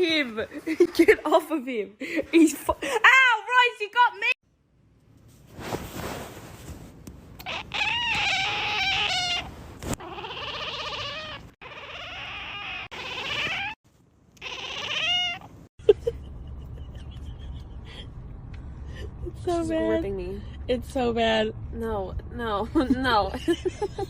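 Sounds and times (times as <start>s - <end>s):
cat yowling: 7.4s - 13.8s, 14.4s - 15.6s.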